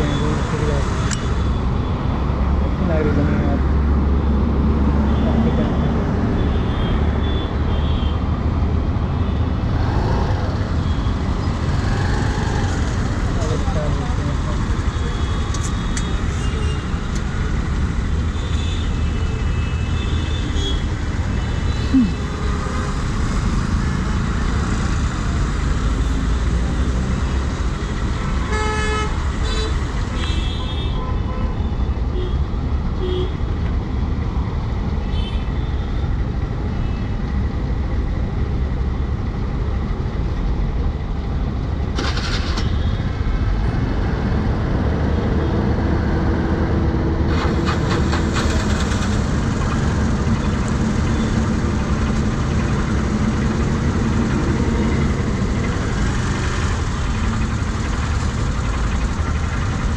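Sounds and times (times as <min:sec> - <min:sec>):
road traffic rumble: 0:00.0 - 0:59.9
vehicle horns honking: 0:05.0 - 0:08.3, 0:28.4 - 0:32.4.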